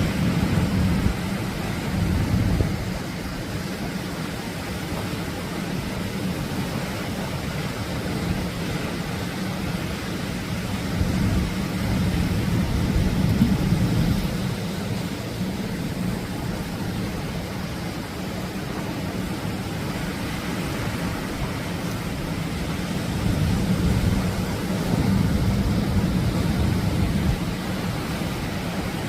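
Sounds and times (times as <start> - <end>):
surf breaking on shore: 0.0 - 29.0
deep rumble: 10.9 - 16.4.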